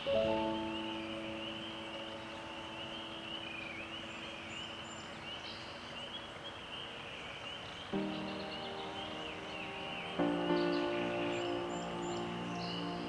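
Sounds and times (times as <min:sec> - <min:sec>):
chorus of high rising calls: 0:08.0 - 0:13.0
sustained music chord: 0:08.0 - 0:13.0.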